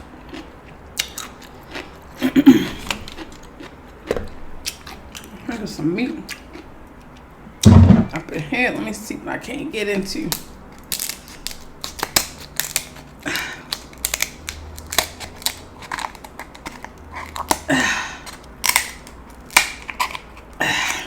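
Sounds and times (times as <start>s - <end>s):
crab shell cracking: 10.3s - 21.0s.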